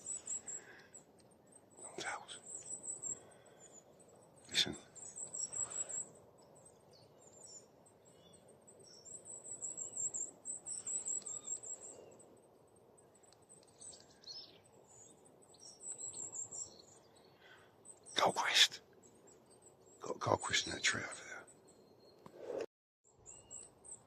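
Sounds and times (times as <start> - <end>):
small birds high-pitched calls: 0.0 - 22.2.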